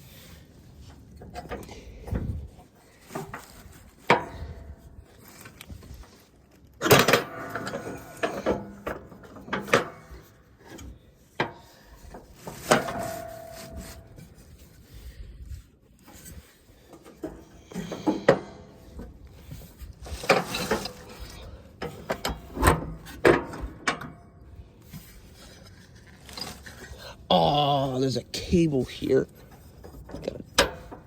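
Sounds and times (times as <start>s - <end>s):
metal parts clanking and scraping: 6.8s - 14.9s, 16.0s - 27.3s, 28.9s - 31.0s.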